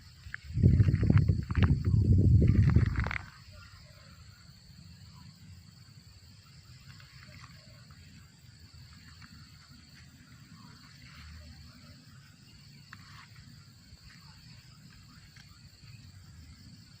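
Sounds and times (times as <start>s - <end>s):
high cricket-like trill: 0.0s - 17.0s.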